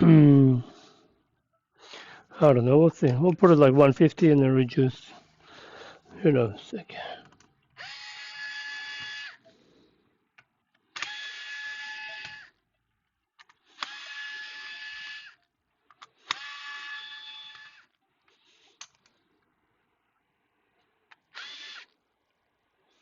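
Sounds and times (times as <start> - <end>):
electric hand tool motor whining: 7.8 - 9.4, 13.8 - 15.4, 16.3 - 17.9, 21.3 - 21.9.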